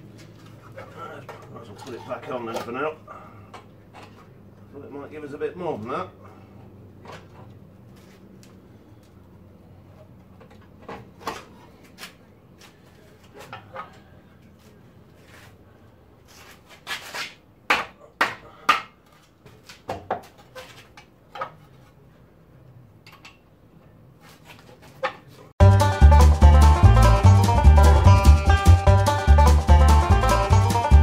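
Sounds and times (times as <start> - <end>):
banjo music: 25.6 - 31.0.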